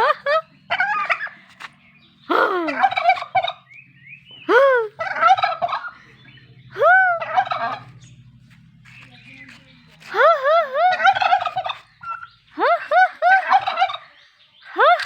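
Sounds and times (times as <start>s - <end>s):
turkey gobbling: 0.0s - 1.4s, 2.3s - 3.8s, 5.0s - 6.1s, 6.8s - 8.1s, 10.8s - 14.2s.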